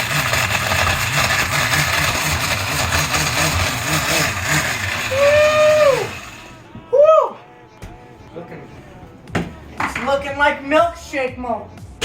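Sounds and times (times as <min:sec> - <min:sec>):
blender whirring: 0:00.0 - 0:06.6.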